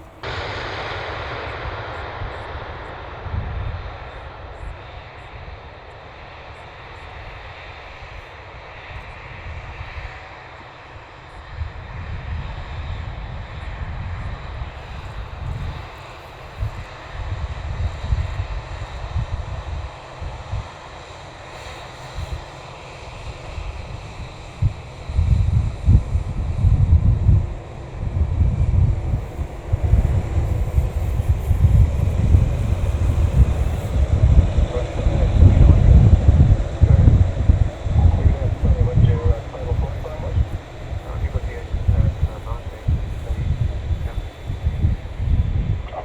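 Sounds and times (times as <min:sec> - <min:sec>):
wind buffeting microphone: 0:00.0 - 0:07.4, 0:23.6 - 0:46.0
jet airliner engines running: 0:00.0 - 0:46.0.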